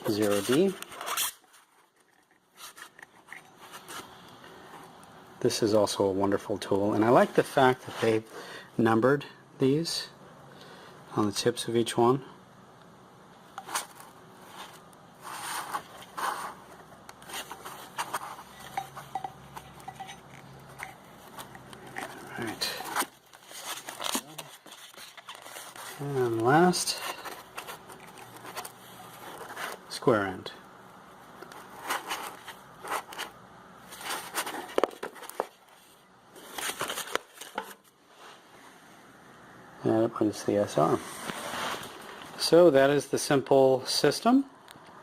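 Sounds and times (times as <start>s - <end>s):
rustling scrapes: 0.0s - 4.9s, 13.6s - 29.9s, 31.6s - 38.8s, 40.9s - 42.3s
metallic clinks: 18.6s - 21.0s.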